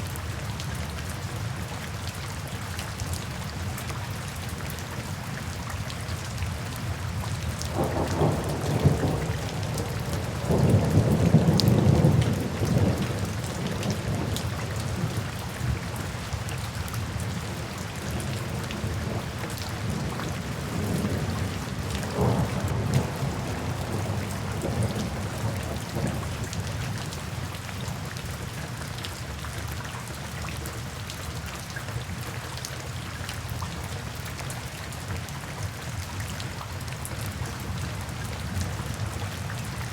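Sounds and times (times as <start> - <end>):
rain falling on foliage: 0.0 - 39.9
low rolls of thunder: 7.7 - 15.2, 18.4 - 26.7.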